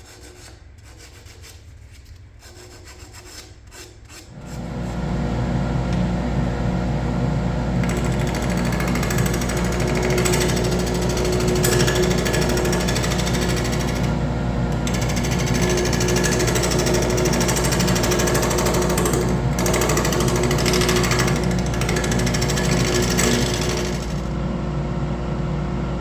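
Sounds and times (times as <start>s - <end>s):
wood lathe running: 7.6s - 24.4s.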